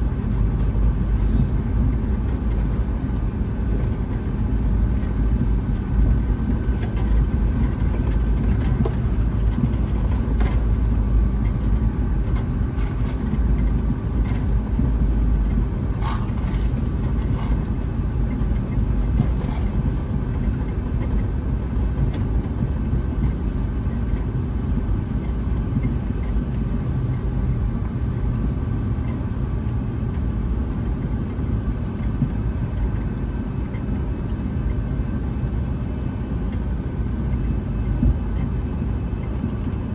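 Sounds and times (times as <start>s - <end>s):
aircraft cabin rumble: 0.0s - 39.9s.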